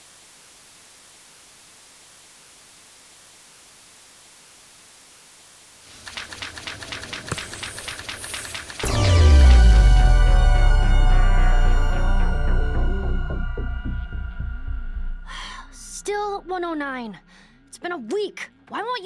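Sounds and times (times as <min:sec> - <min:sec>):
faint steady hiss: 0:00.0 - 0:06.8
fast clicking rattle: 0:05.9 - 0:08.9.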